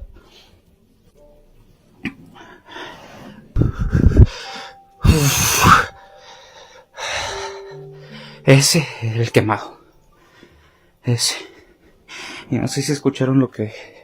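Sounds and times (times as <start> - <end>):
man breathing hard and gasping: 2.4 - 8.4.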